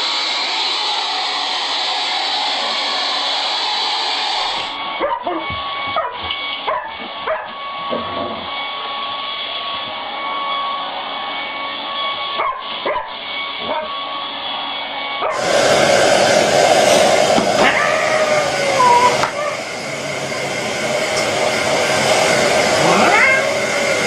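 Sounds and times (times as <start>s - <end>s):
hair dryer blowing: 0.0s - 24.0s
dog yipping and whimpering: 17.6s - 19.7s, 22.9s - 23.5s.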